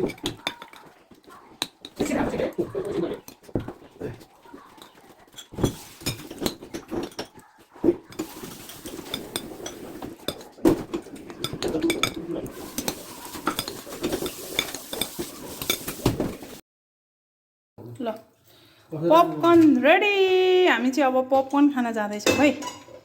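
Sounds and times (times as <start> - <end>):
metal utensils clinking on dishes: 0.0 - 16.6, 22.2 - 23.0.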